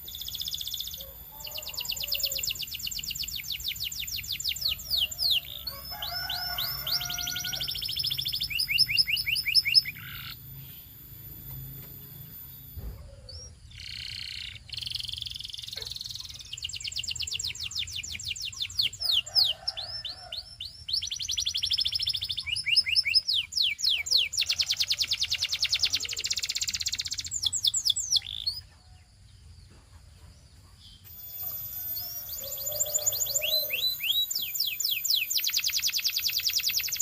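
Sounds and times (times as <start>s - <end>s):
canary singing trills: 0.0s - 29.1s, 30.7s - 37.0s.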